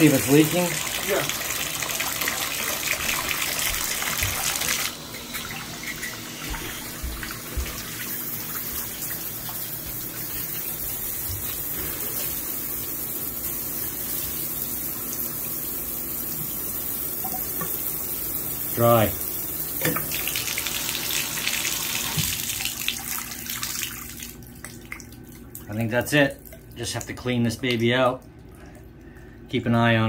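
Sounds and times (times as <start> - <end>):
water running from bathtub spout: 0.0 - 30.0.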